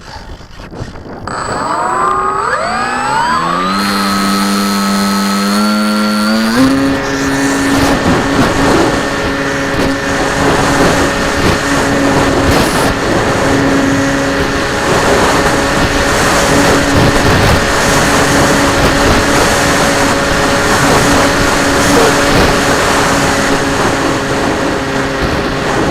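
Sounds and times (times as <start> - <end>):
model plane motor and propeller: 1.2 - 25.9.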